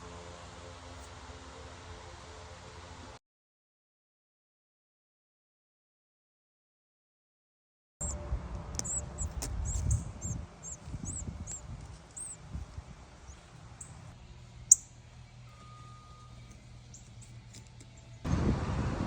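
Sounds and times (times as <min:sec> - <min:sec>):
small birds chirping: 0:08.0 - 0:18.3.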